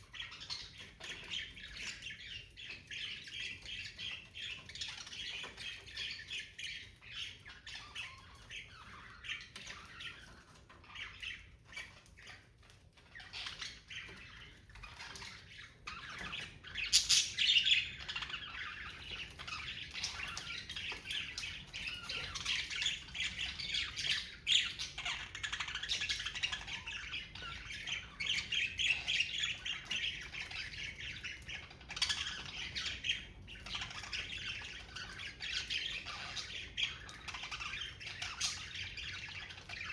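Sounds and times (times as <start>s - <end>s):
budgerigars chattering: 13.1s - 39.9s.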